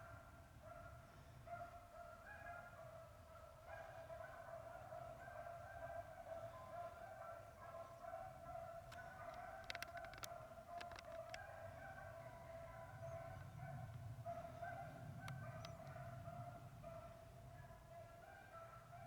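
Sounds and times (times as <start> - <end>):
distant hounds baying: 0.1 - 19.0
sharp clicks: 8.9 - 11.4, 15.3 - 16.0.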